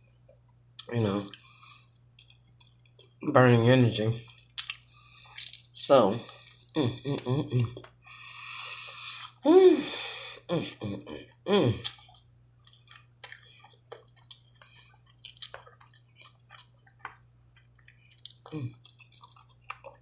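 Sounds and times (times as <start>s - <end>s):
wet chewing clicks and smacks: 0.3s - 3.2s, 4.2s - 5.7s, 11.8s - 20.0s.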